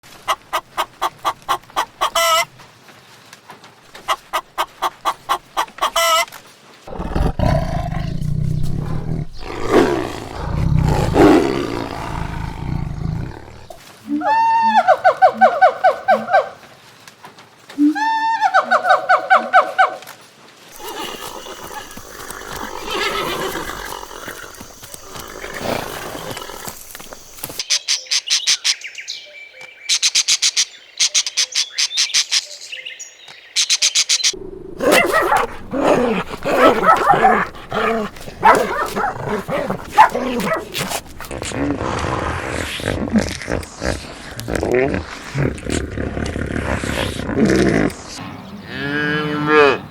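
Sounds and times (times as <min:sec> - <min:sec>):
low-pitched animal sound: 0:06.9 - 0:14.8, 0:34.4 - 0:49.9
farm animal high pulsing call: 0:20.8 - 0:27.2
bird chirping in rapid runs: 0:21.2 - 0:34.4
farm animal low rough call: 0:34.4 - 0:42.0.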